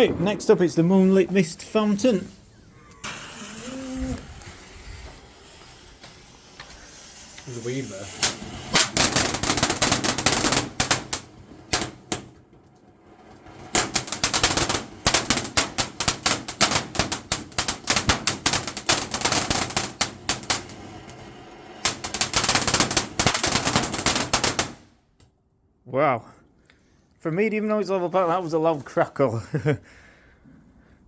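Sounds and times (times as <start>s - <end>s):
firework fountain crackling: 0.0s - 24.9s.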